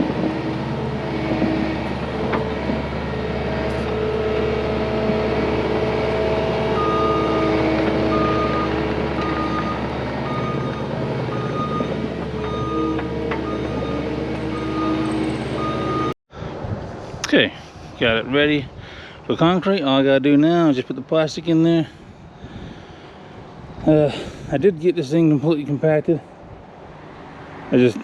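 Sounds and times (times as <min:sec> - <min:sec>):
diesel engine under load: 0:00.0 - 0:16.2
reverse alarm beeping: 0:06.8 - 0:16.2.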